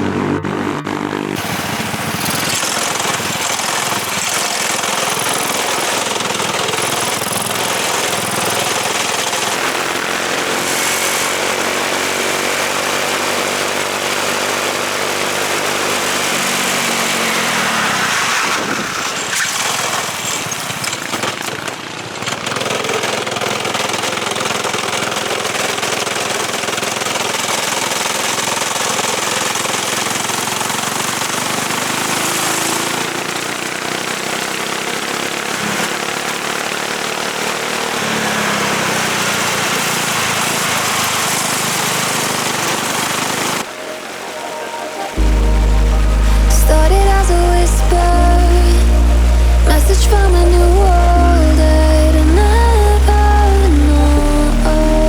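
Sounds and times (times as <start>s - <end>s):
kart engine revving: 0.0s - 44.1s, 45.2s - 55.0s.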